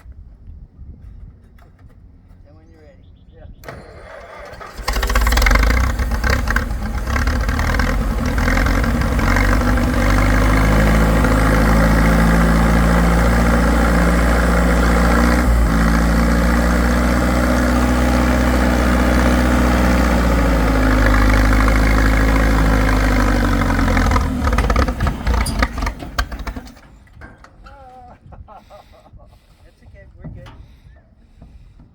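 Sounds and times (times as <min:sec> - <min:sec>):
tractor engine running: 0:03.6 - 0:28.4.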